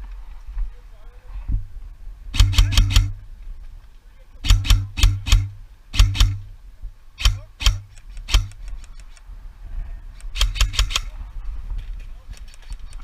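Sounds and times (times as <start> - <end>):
airsoft rifle shots: 2.3 - 3.2, 4.4 - 6.6, 7.2 - 8.8, 10.3 - 11.1.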